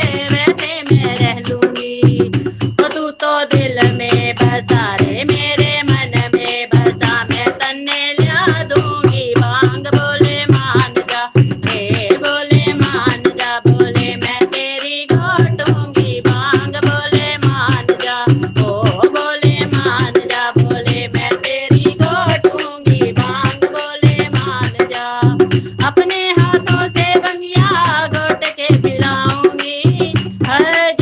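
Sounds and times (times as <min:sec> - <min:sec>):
fast steady drum beat: 0:00.0 - 0:31.0.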